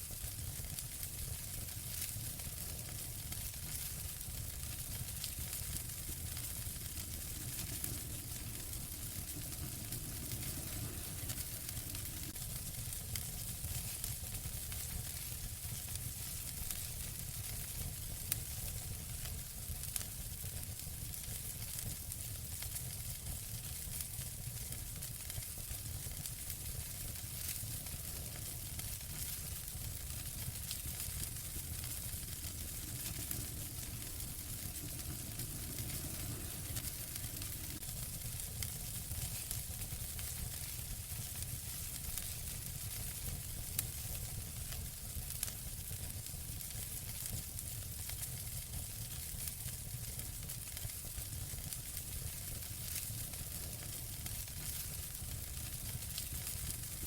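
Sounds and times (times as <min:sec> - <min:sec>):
fire crackling and hissing: 0:00.0 - 0:57.0.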